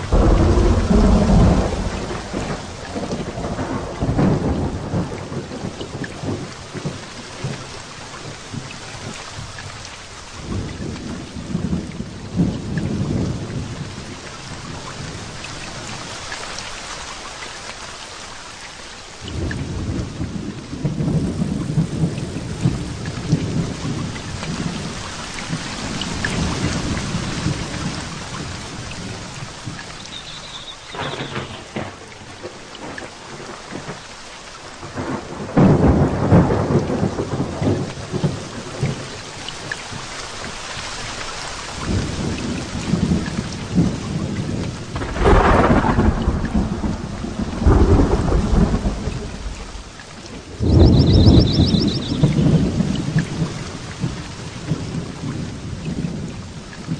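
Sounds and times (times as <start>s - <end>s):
rolling thunder: 0.0s - 9.8s, 19.3s - 34.1s, 34.8s - 39.3s, 41.8s - 56.9s
heavy rain: 0.0s - 56.9s.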